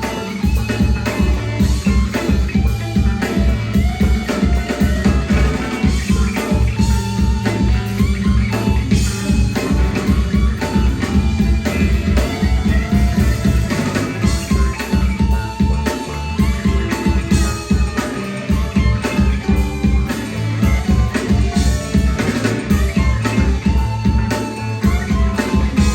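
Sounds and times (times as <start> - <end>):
drum kit driving beat: 0.0 - 25.9
rock band playing: 0.0 - 25.9.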